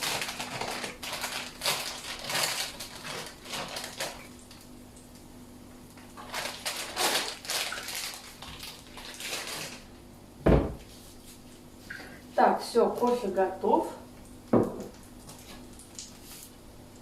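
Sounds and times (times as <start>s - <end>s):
heavy thump: 10.4s - 10.8s.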